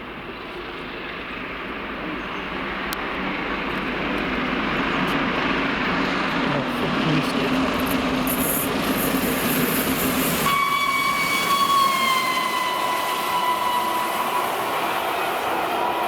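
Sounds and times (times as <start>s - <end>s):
train passing at speed: 0.0s - 16.0s
train whistle falling in pitch: 10.4s - 16.0s.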